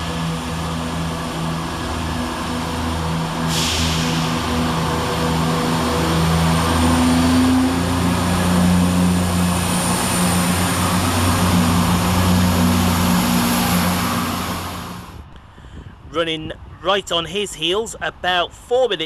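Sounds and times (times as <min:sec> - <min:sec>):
diesel train engines running: 0:00.0 - 0:15.5.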